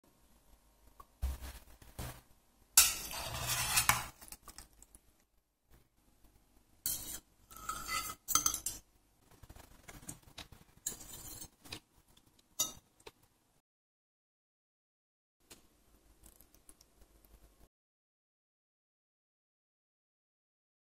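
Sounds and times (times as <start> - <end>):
utensils clinking on plate: 2.8 - 4.2, 6.9 - 8.9, 10.8 - 11.8
spoon scraping frying pan: 2.8 - 4.4, 6.9 - 8.9, 9.5 - 11.9.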